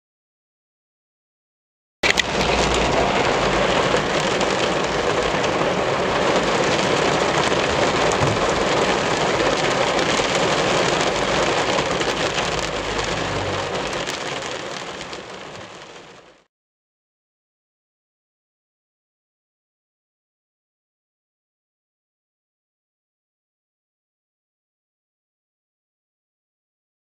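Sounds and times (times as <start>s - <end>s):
heavy rain on a moving car: 2.0s - 16.5s.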